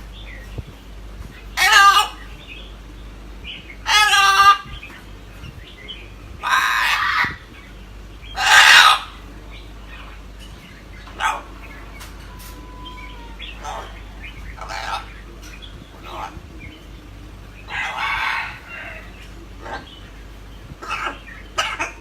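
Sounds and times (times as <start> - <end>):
parrot squawking: 1.5 - 2.5, 3.8 - 4.9, 6.3 - 7.6, 8.3 - 9.3, 11.0 - 15.3, 15.9 - 16.5, 17.6 - 20.1, 20.7 - 22.0.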